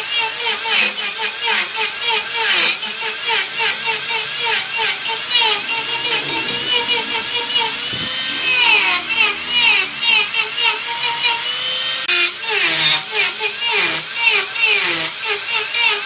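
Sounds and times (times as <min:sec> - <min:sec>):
wood lathe squealing: 0:00.0 - 0:16.0
hiss of cutting: 0:02.5 - 0:12.1.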